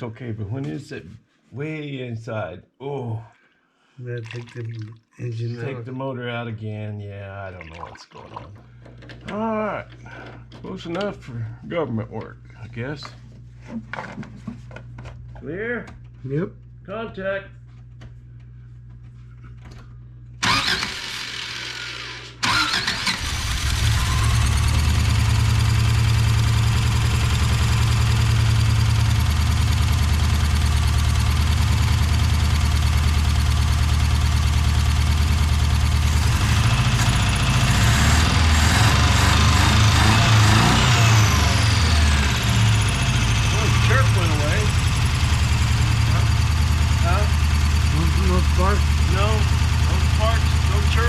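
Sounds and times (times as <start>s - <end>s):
starter cranking engine: 20.4s - 33.6s, 35.9s - 51.0s
engine running rough: 20.4s - 51.0s.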